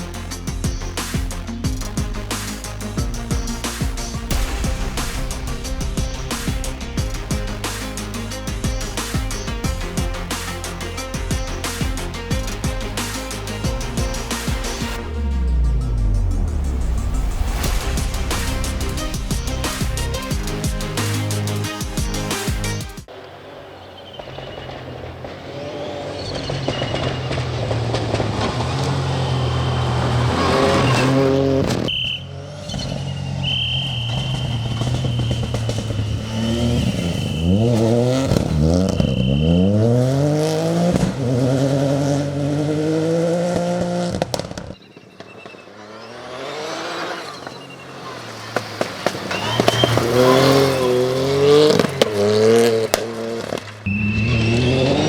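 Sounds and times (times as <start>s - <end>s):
rally car engine revving: 23.1s - 55.0s.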